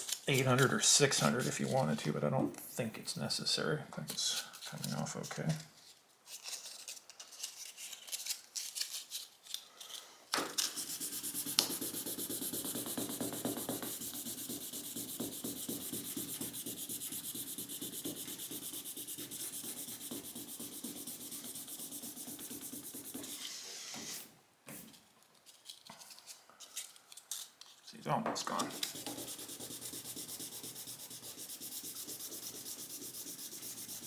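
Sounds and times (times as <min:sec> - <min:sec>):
sandpaper rubbing on paint: 0:10.7 - 0:24.3, 0:28.7 - 0:34.0.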